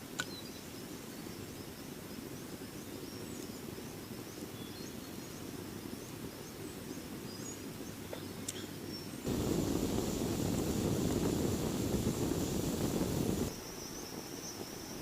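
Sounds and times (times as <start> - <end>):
low background rush: 9.1 - 15.0.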